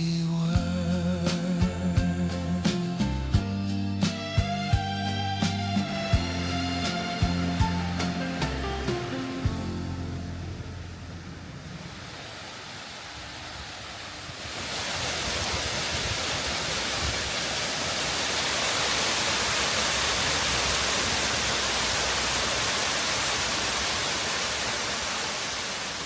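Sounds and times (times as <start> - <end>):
steady rushing noise: 5.9 - 26.0.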